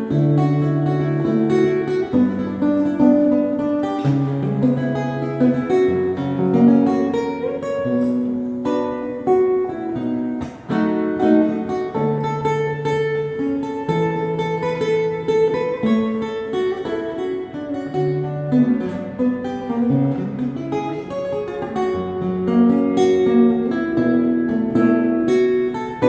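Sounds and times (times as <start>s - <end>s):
solo guitar tune: 0.0s - 26.0s.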